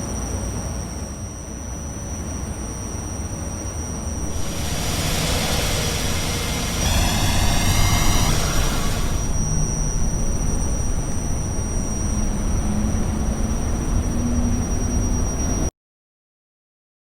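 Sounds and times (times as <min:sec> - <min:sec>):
loud rushing hiss: 0:04.1 - 0:12.0
squealing whine: 0:04.1 - 0:15.7
subway train rumble: 0:04.1 - 0:15.7.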